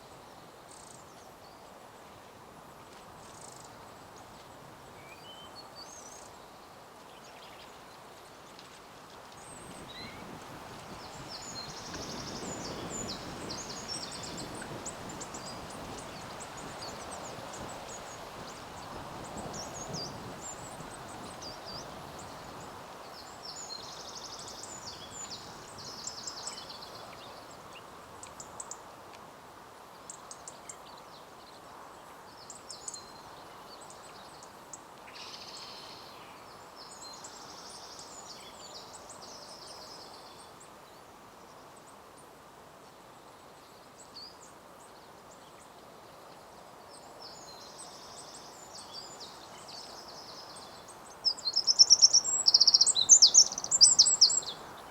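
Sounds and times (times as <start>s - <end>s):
outdoor background hiss: 0.0s - 54.9s
small birds singing: 9.4s - 28.8s, 30.1s - 41.1s, 43.6s - 54.9s.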